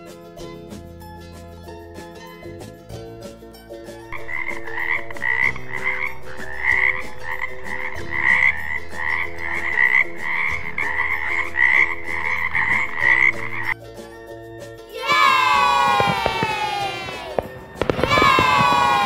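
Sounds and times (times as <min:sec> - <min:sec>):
frog croaking: 0:04.2 - 0:13.8.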